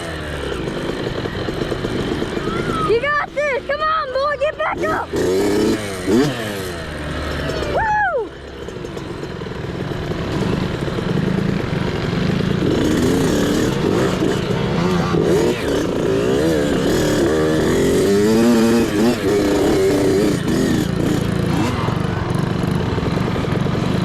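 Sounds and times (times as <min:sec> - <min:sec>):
mini bike engine revving: 0:00.0 - 0:24.0
person shouting: 0:02.4 - 0:05.2, 0:07.6 - 0:08.3.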